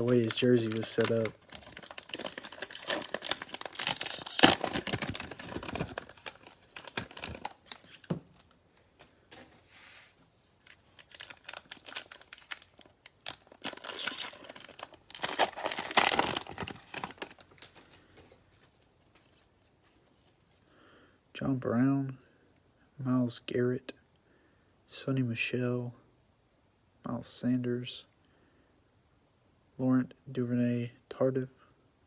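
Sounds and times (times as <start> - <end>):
cellophane wrapper crinkling: 0.0 - 8.6, 10.6 - 17.9.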